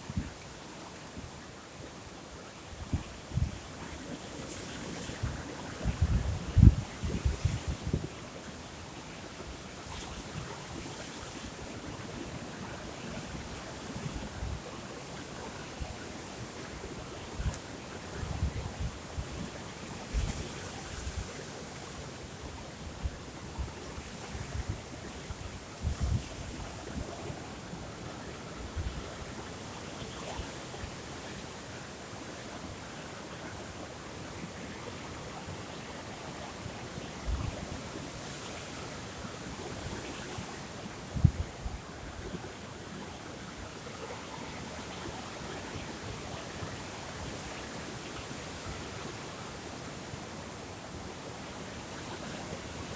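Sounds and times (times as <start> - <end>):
wind: 0.0 - 52.9
wind gusting on microphone: 5.0 - 8.2.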